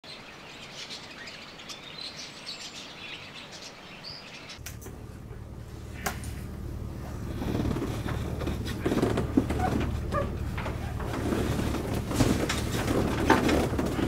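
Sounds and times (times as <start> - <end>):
faint outdoor hiss: 0.0 - 13.7
songbirds chirping: 0.0 - 14.0
steady low hum: 4.6 - 14.0.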